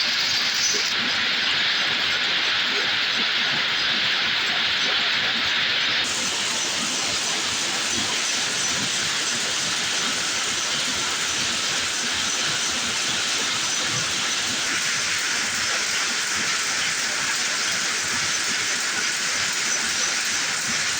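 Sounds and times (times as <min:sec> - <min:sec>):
hiss: 0:05.9 - 0:20.9
weaving loom clatter: 0:06.0 - 0:20.9.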